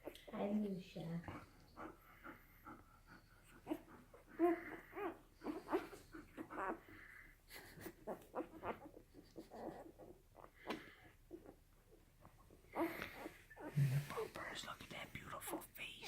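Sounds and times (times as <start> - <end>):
puppies squeaking and whimpering: 3.4 - 11.6, 12.7 - 14.3.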